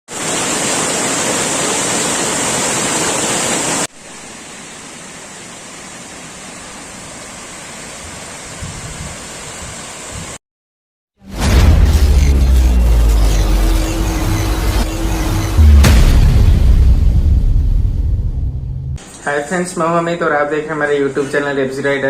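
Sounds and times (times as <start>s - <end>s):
waterfall roaring: 0.1s - 7.9s.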